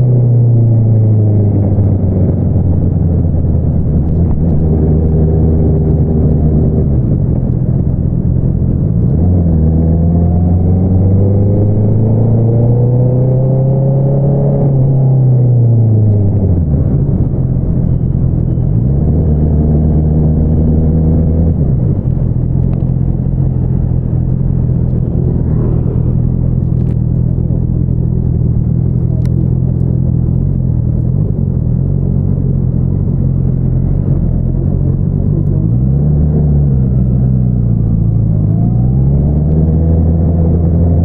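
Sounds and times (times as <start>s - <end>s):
motorcycle engine revving: 18.7s - 29.5s.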